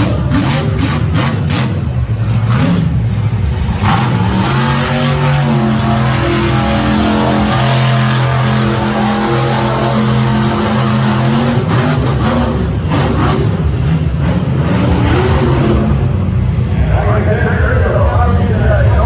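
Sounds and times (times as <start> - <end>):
monster truck engine revving: 0.0 - 19.0.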